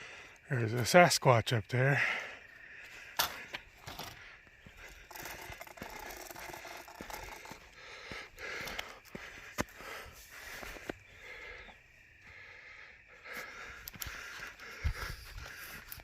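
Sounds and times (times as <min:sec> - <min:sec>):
cyclist breathing hard: 0:00.0 - 0:00.4, 0:02.0 - 0:16.0
bicycle clicks and rattles: 0:04.8 - 0:07.8.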